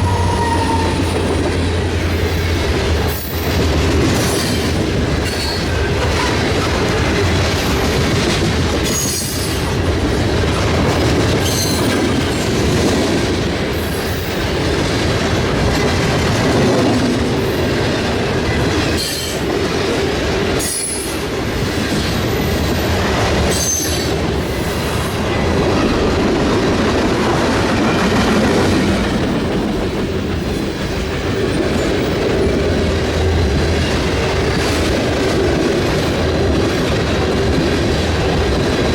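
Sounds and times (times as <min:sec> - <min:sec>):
high-pitched wheel squeals: 0:00.0 - 0:01.5
train wheels rumbling on rails: 0:00.0 - 0:38.9.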